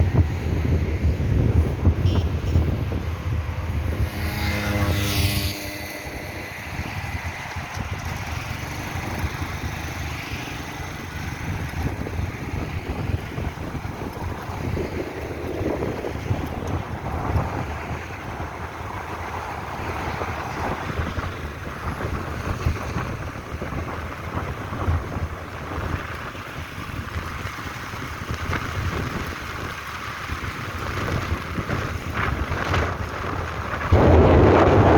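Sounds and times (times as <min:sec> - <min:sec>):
wind gusts on microphone: 0:00.0 - 0:34.9.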